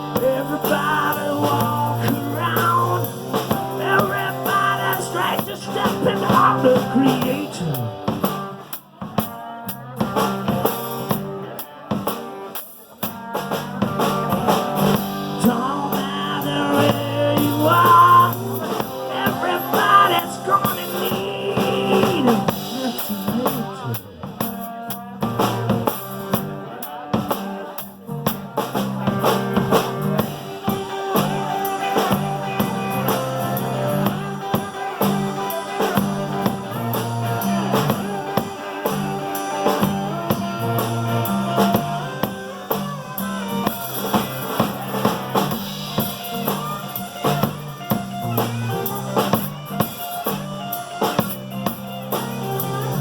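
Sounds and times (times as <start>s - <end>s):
bass line: 0.0s - 12.2s, 13.1s - 53.0s
drum kit: 0.0s - 53.0s
electric guitar: 0.0s - 53.0s.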